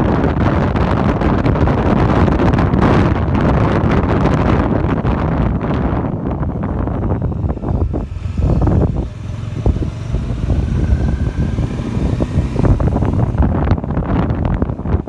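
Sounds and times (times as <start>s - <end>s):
wind buffeting microphone: 0.0s - 15.0s
motorcycle engine running: 5.6s - 15.0s.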